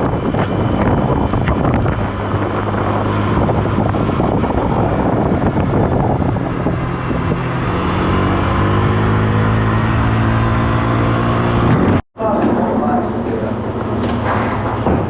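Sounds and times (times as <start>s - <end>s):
wind on microphone: 0.0s - 12.0s
engine low hum: 0.0s - 15.0s.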